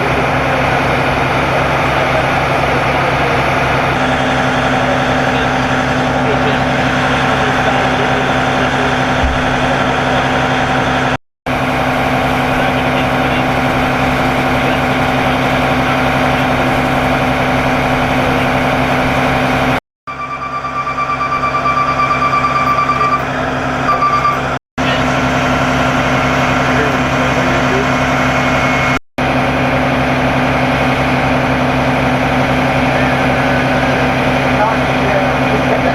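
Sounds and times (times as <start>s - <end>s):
diesel engine idling: 0.0s - 35.9s
high electronic beeping tone: 20.1s - 25.0s.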